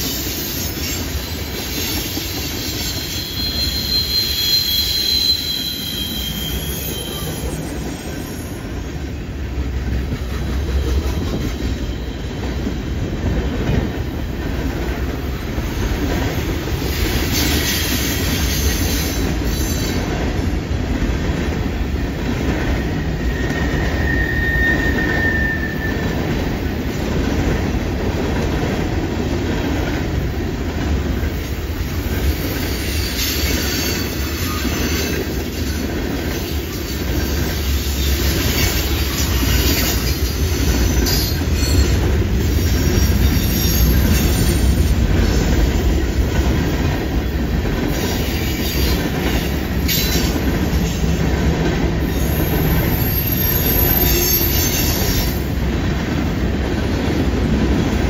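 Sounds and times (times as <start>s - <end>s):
high wheel squeal: 0.0s - 8.8s, 22.8s - 26.4s, 32.6s - 35.8s, 37.4s - 44.9s, 52.0s - 55.4s
train wheels rumbling on rail: 0.0s - 58.0s.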